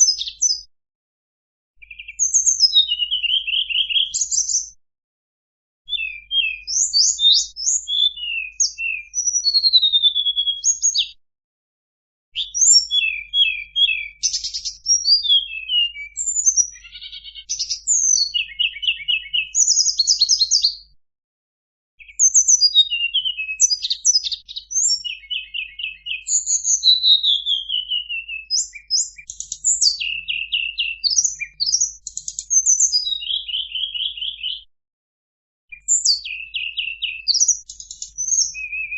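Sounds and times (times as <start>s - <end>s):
bird singing chirps and trills: 0.0s - 0.7s, 1.8s - 4.8s, 5.9s - 11.2s, 12.4s - 20.9s, 22.0s - 34.7s, 35.7s - 38.9s.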